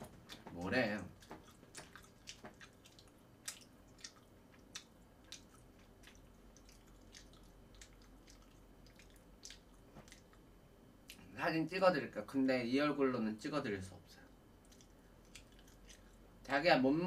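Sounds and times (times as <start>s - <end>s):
chewing mouth sounds: 0.0s - 11.3s, 14.6s - 16.5s.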